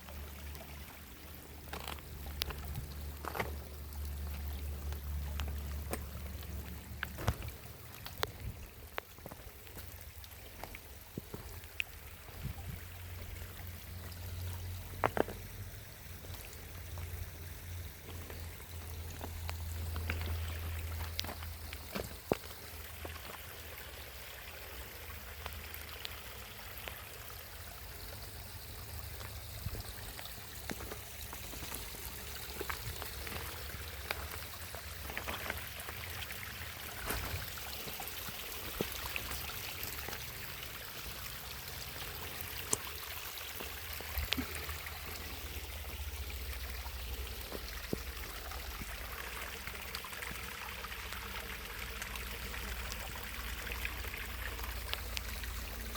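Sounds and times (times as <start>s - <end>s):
water trickling: 0.0s - 55.9s
small ticks: 1.7s - 12.0s, 18.0s - 23.4s, 54.4s - 55.8s.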